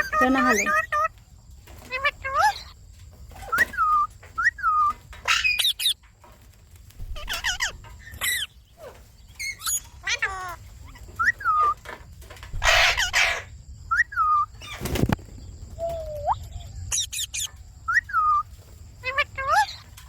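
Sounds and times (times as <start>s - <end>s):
parrots chirping and squawking: 0.0s - 6.4s, 7.0s - 14.8s, 15.8s - 20.0s
wings flapping: 0.0s - 20.0s.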